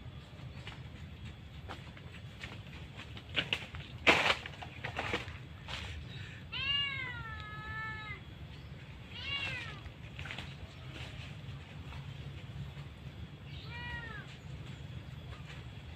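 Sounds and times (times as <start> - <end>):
animal crying: 6.5 - 8.2, 9.1 - 9.9, 13.4 - 14.4.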